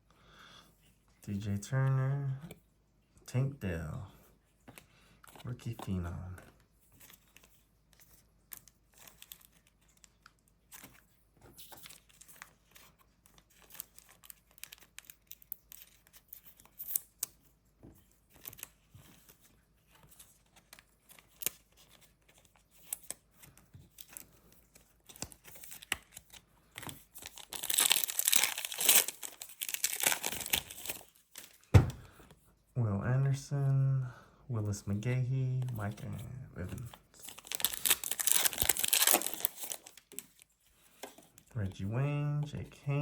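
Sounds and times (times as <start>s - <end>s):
trading cards clicking and shuffling: 10.7s - 32.4s, 35.5s - 41.4s
foil wrapper crinkling and tearing: 13.4s - 17.1s, 25.0s - 31.6s, 36.8s - 40.5s.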